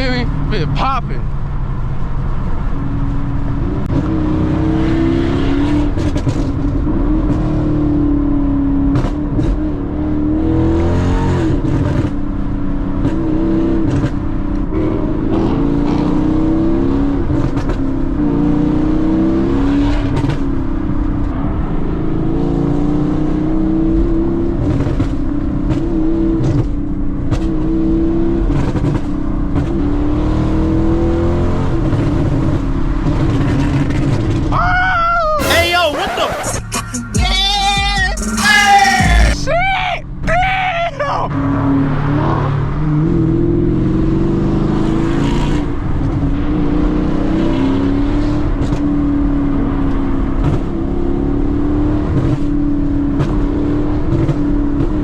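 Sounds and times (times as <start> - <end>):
car engine revving: 0.0 - 34.5, 35.4 - 39.4.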